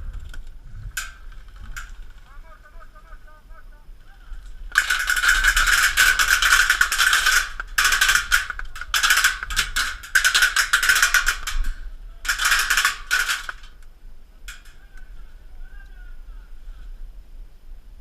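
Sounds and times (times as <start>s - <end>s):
airsoft gun rapid clicking shots: 4.7s - 13.7s.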